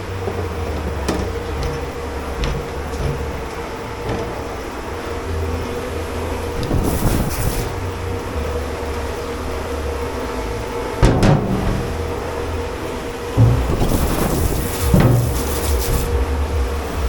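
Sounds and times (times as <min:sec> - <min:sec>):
dish machinery humming: 0:00.0 - 0:17.0
loud knock or clatter: 0:11.0 - 0:12.3, 0:13.4 - 0:15.7.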